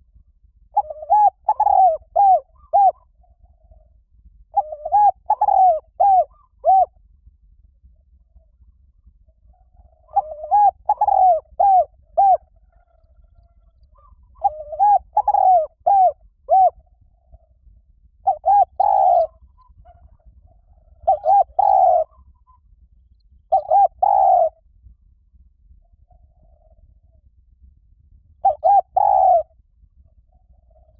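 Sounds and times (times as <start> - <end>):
dove cooing: 0.7 - 7.0, 9.5 - 17.5, 18.2 - 22.6, 23.5 - 24.6, 28.4 - 29.6.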